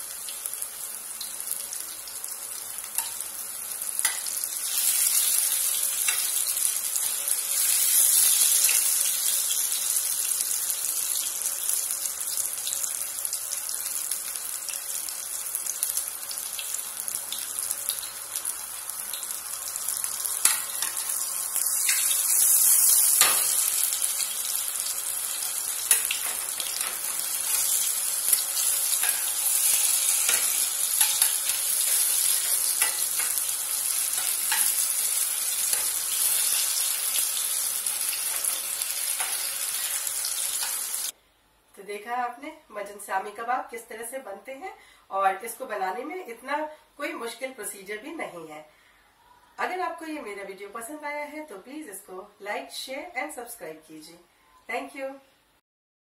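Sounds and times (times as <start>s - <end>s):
patties sizzling in oil: 0.0s - 41.2s.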